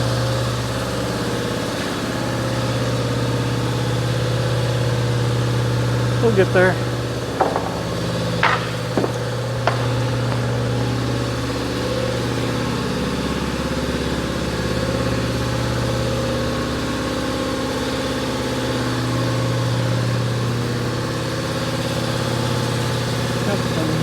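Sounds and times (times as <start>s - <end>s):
motor humming: 2.4s - 16.0s.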